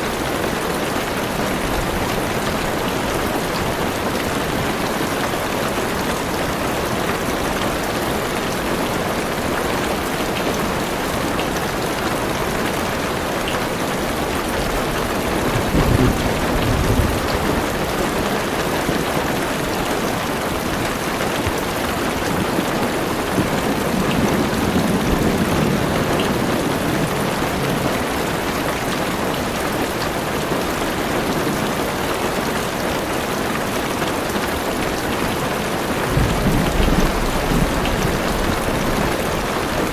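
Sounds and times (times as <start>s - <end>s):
heavy rain on car roof: 0.0s - 39.9s
thunder rumbling: 14.4s - 19.2s, 36.0s - 39.9s.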